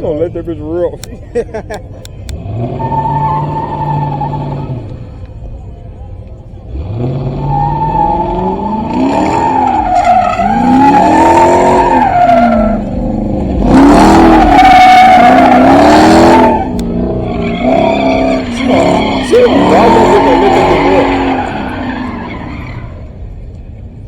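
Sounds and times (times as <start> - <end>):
car engine revving: 1.6 - 24.0
tyres screeching: 7.3 - 23.2.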